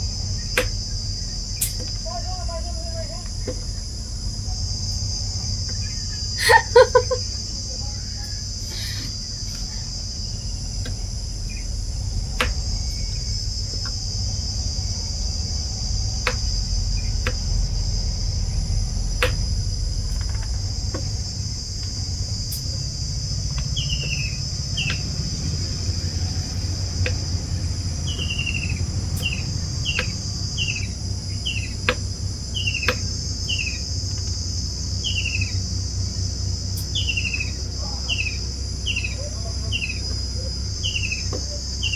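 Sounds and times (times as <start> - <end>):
bird chirping: 0.0 - 34.0, 35.0 - 35.7, 36.7 - 41.9
insects shrilling: 0.0 - 41.9
low rumble: 0.0 - 41.9
sharp clicks: 16.2 - 17.6, 24.8 - 25.2.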